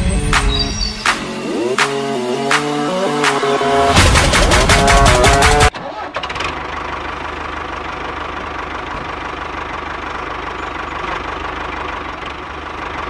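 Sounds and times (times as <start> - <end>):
tractor engine idling: 3.9 - 13.0.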